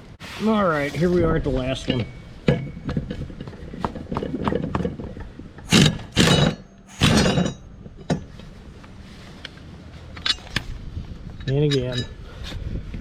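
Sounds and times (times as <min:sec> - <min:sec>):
loud noisy tool bursts: 0:05.7 - 0:07.5.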